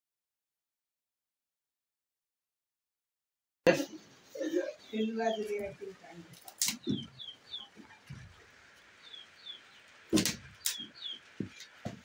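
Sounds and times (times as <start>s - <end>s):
small bird chirping: 4.4s - 12.0s.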